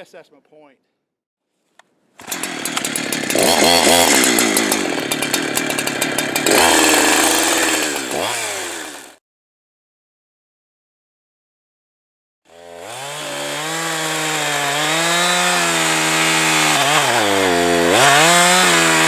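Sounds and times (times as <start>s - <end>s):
chainsaw revving: 2.2s - 9.2s, 12.5s - 19.0s.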